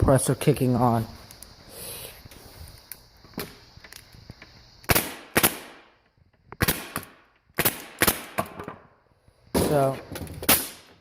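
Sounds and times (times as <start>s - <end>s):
pneumatic staple gun firing: 10.4s - 11.0s.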